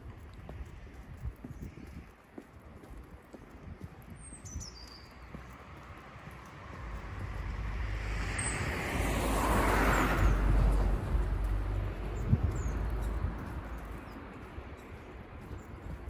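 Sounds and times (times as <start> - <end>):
car driving past: 6.8 - 13.1.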